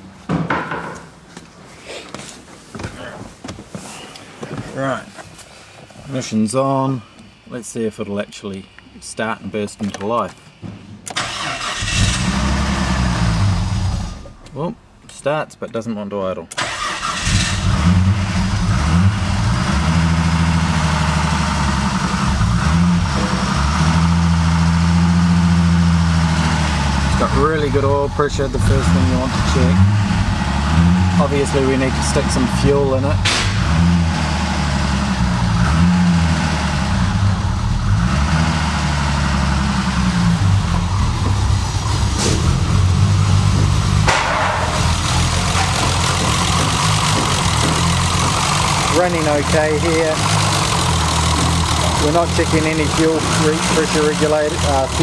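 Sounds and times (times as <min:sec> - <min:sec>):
car engine revving unevenly: 0:11.6 - 0:14.4, 0:17.1 - 0:55.0.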